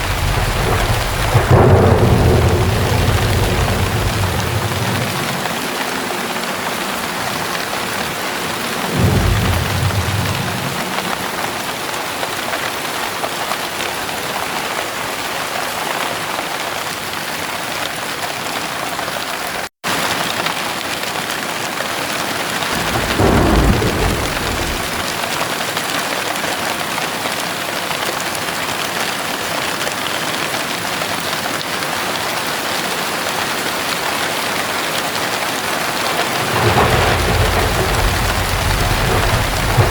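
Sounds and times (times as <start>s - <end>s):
low thunder rumbles: 0.0s - 7.4s, 8.1s - 11.8s, 22.7s - 25.2s, 36.0s - 39.9s
heavy rain pouring: 0.0s - 39.9s.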